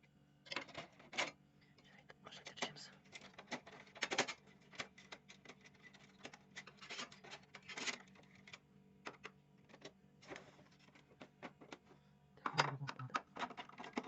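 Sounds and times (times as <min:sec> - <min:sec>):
plastic parts clicking and scraping: 0:00.5 - 0:01.4, 0:02.6 - 0:14.0.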